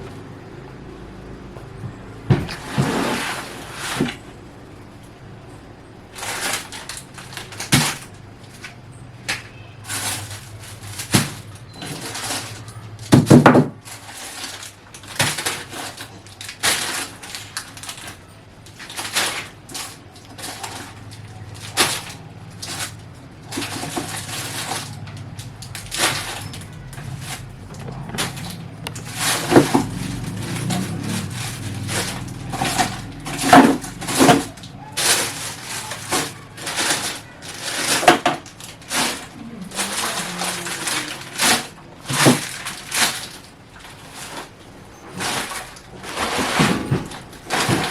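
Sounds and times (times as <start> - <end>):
hard objects knocking and clattering: 1.5 - 4.3, 6.1 - 47.9
low rumbling noise: 21.2 - 43.8.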